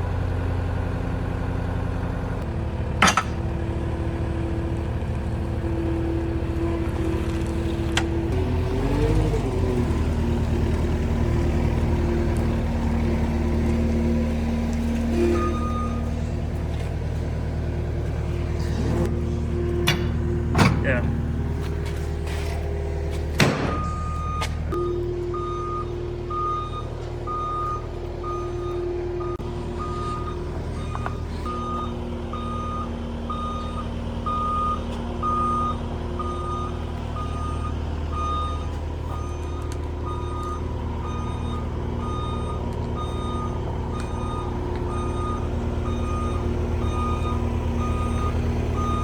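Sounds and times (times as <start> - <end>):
vehicle engine running: 0.0 - 49.0
reversing beeper beeps: 15.1 - 16.1, 23.7 - 49.0.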